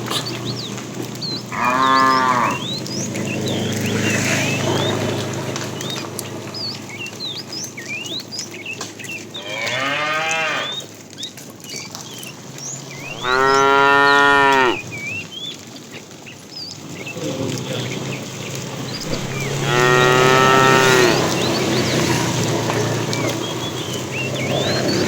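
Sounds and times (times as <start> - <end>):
cattle mooing: 1.5 - 2.6, 9.4 - 10.8, 13.0 - 14.8, 19.0 - 21.4.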